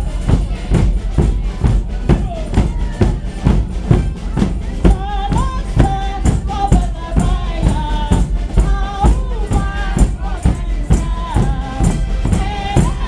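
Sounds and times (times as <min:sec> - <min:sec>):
bass drums marching beat: 0:00.0 - 0:13.0
snare drums: 0:00.0 - 0:13.0.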